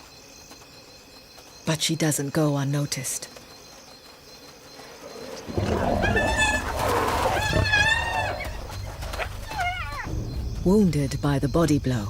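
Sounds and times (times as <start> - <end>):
lioness snarling and growling: 5.1 - 9.7
hyena squealing cries: 5.5 - 10.1.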